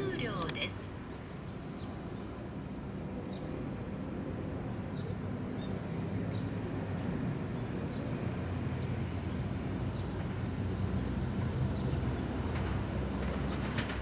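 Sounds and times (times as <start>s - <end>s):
electric train rumbling: 6.4s - 14.0s.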